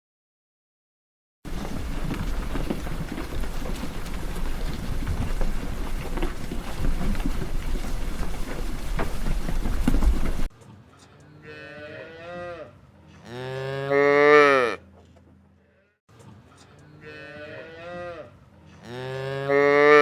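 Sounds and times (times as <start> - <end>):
cow mooing: 11.3 - 14.8, 16.8 - 20.0.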